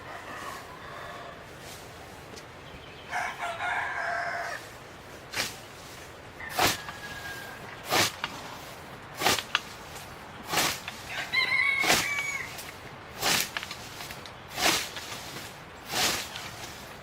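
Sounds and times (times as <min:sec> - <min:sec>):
rooster crowing: 0:00.0 - 0:01.5, 0:03.1 - 0:04.8, 0:06.4 - 0:07.7, 0:11.1 - 0:12.6.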